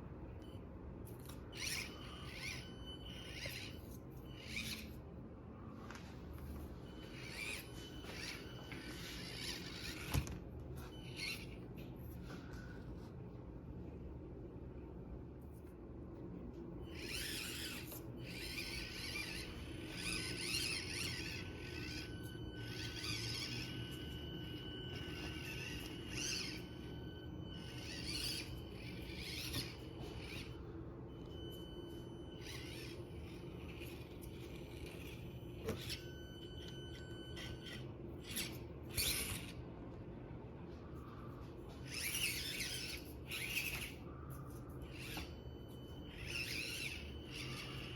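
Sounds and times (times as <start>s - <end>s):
small electric motor whining: 1.1s - 12.4s, 16.8s - 39.6s, 40.9s - 47.9s.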